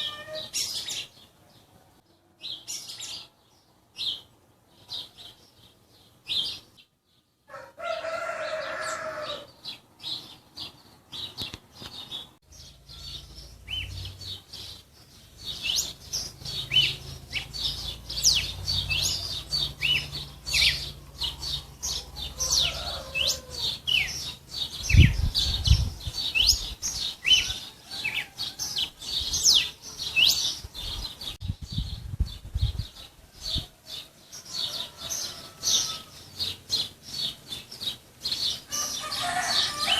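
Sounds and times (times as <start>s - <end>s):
lower pitched bird call: 0.0s - 1.3s
songbirds chirping: 0.0s - 39.9s.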